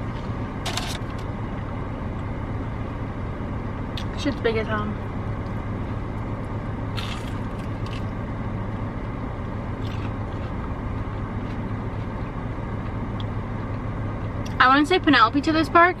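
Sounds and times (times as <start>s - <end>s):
car cabin noise: 0.0s - 1.7s, 6.9s - 12.3s
car engine idling: 0.0s - 16.0s.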